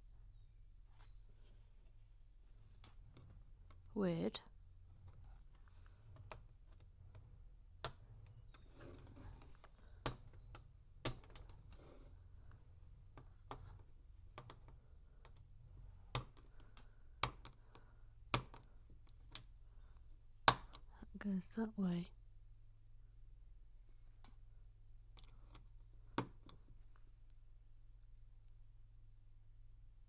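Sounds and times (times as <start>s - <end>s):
low room hum: 0.0s - 30.0s.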